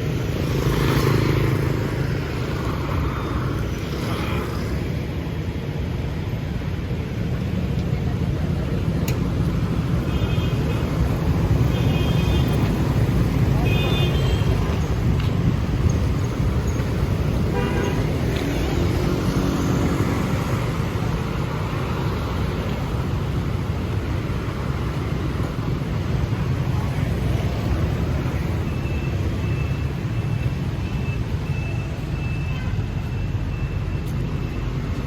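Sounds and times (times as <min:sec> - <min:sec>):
city traffic rumble: 0:00.0 - 0:35.0
car horn toot: 0:17.5 - 0:18.0.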